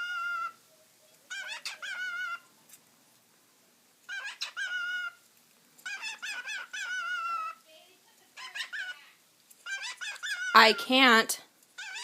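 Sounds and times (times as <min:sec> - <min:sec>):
cockatiel chirping and whistling: 0:01.3 - 0:02.4, 0:04.1 - 0:05.2, 0:05.8 - 0:07.6, 0:09.6 - 0:10.5.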